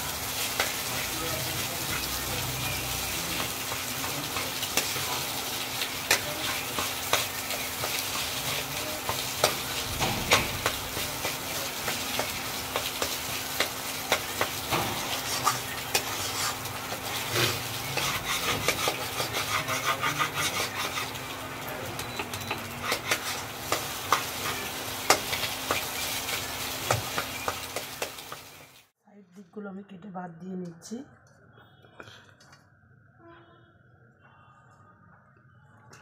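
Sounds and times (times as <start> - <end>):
filling sizzling in oil: 0.0 - 28.9
metal spatula scraping a wok: 3.4 - 21.3, 22.4 - 28.4.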